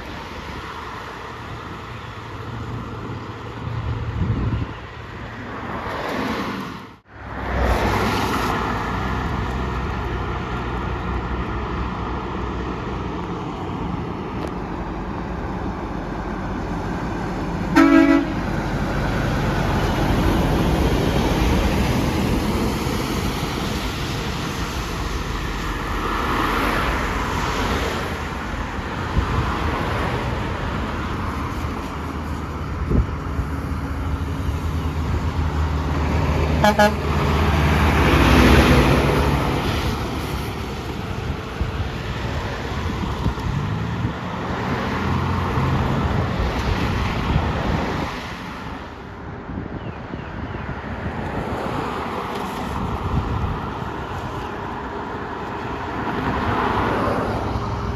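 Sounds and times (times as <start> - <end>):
road traffic passing: 0.0 - 57.9
vehicle horn toot: 17.7 - 18.5, 36.6 - 37.1.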